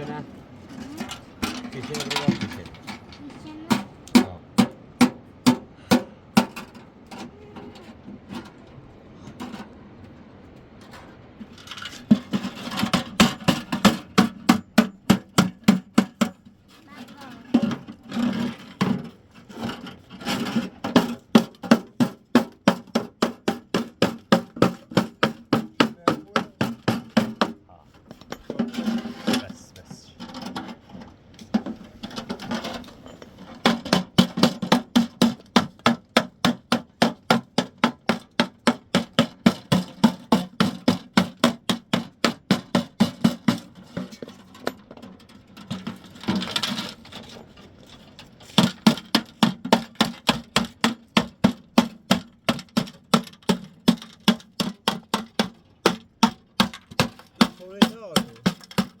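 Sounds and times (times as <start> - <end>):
adze chopping wood: 33.6 - 43.6, 48.6 - 59.0.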